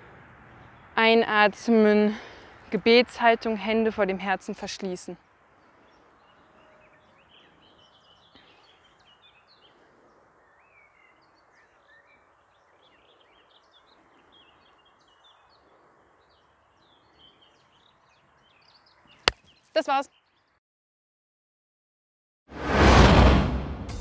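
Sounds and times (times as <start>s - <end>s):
quiet outdoor background noise: 0.0s - 20.6s
small birds chirping: 5.1s - 20.6s.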